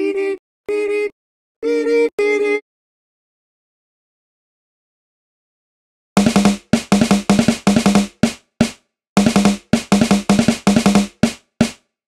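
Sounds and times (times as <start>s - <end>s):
drum strokes with ringing tone: 6.2s - 11.8s.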